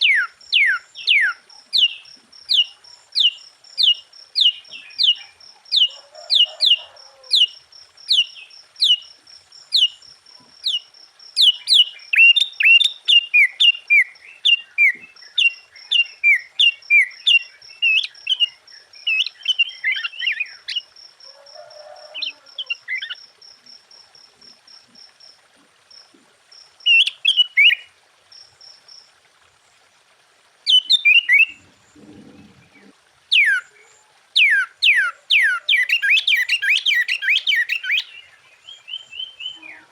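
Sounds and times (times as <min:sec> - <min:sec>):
bird singing whistled notes: 0:00.0 - 0:06.8, 0:30.7 - 0:31.6, 0:34.4 - 0:39.9.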